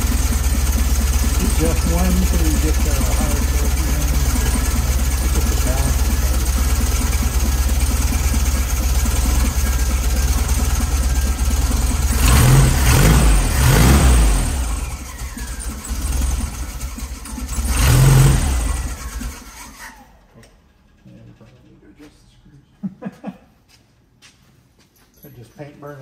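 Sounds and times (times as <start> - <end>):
car engine idling and revving: 0.0 - 22.2.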